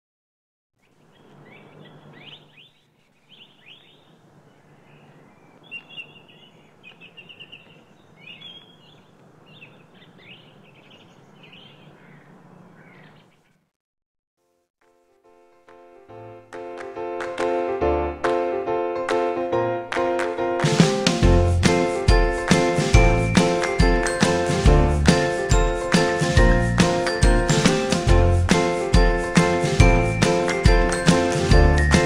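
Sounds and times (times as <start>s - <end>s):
birds chirping: 0.8s - 13.7s.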